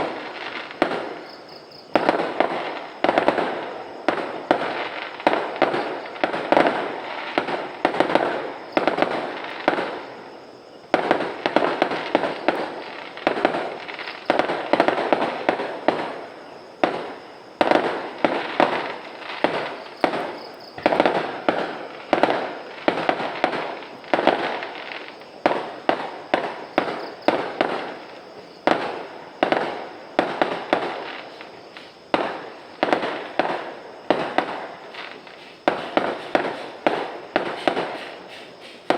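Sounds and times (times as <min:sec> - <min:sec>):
fireworks bangs and pops: 0:00.0 - 0:38.9.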